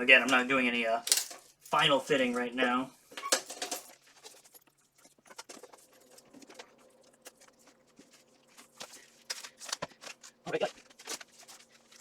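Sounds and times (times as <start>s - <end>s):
metal armor plates clicking: 1.1s - 1.4s.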